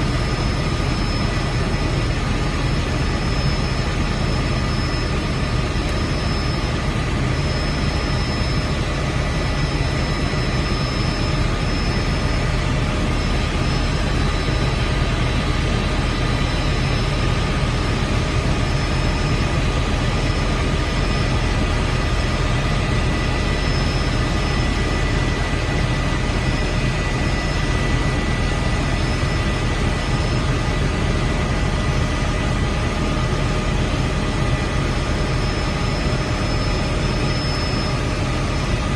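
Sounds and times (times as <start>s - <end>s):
constant high whine: 0.0s - 38.9s
helicopter engine and rotor noise: 0.0s - 38.9s.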